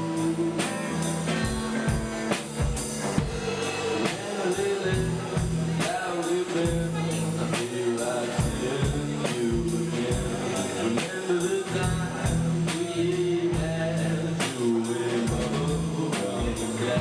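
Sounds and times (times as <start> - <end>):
bass: 0.0 - 17.0
drum kit steady beat: 0.0 - 17.0
person singing: 0.0 - 17.0.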